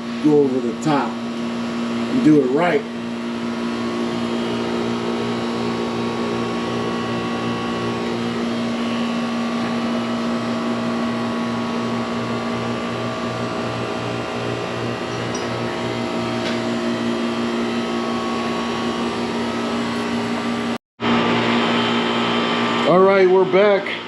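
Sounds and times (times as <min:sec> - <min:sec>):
motor humming: 0:00.0 - 0:23.8.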